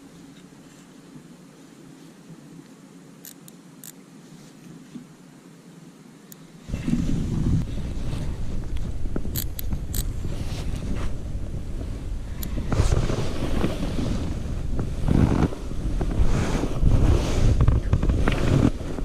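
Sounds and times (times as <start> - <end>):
small sharp clicks: 3.2 - 4.0, 8.8 - 10.1
wind buffeting microphone: 6.7 - 19.0.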